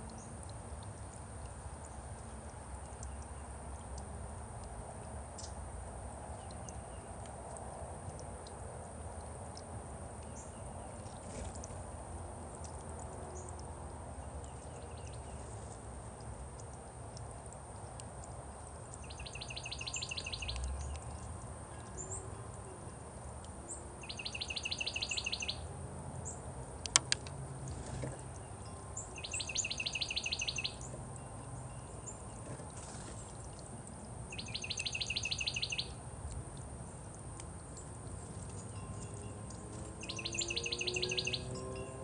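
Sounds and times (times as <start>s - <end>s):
low outdoor background: 0.0s - 42.0s
faint bird chirps: 18.9s - 22.4s, 23.7s - 25.6s, 28.1s - 33.6s, 34.3s - 36.0s, 38.5s - 41.6s
songbird trilling: 19.0s - 21.2s, 23.7s - 25.6s, 28.4s - 31.0s, 34.3s - 36.0s, 39.9s - 41.6s.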